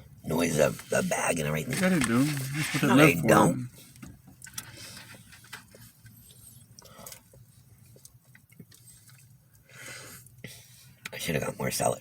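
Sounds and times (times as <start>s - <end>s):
rustling: 0.5s - 3.3s
person chewing: 5.7s - 9.7s.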